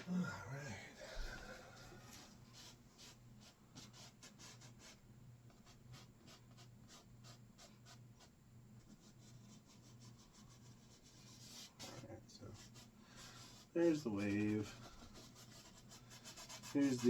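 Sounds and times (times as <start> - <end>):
steady low hum: 0.0 - 3.5
paintbrush scratching on canvas: 2.0 - 17.0.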